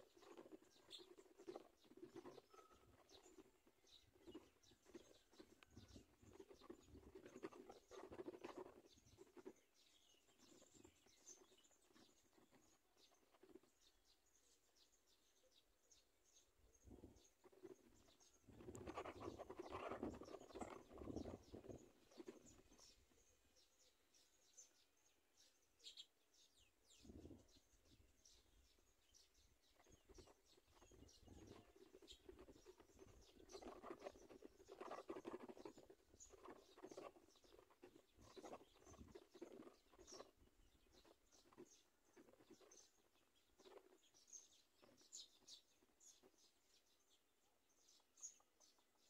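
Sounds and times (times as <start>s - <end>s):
high-pitched bird chirps: 2.0s - 3.4s.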